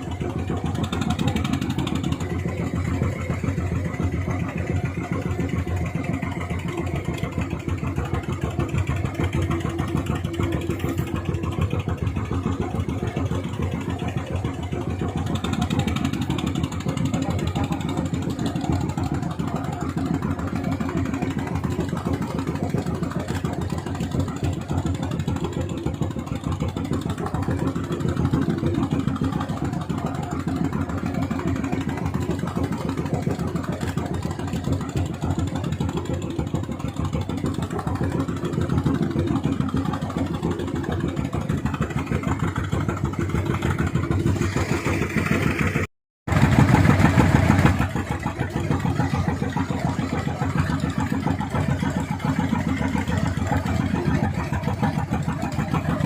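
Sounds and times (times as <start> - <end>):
boat engine at high throttle: 0.0 - 56.0.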